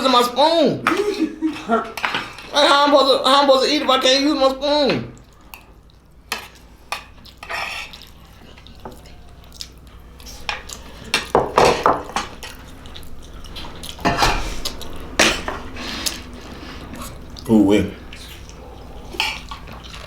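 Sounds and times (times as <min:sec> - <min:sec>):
eating sounds: 0:05.1 - 0:11.3, 0:12.2 - 0:20.0
spoon scraping glass bowl: 0:07.4 - 0:08.0.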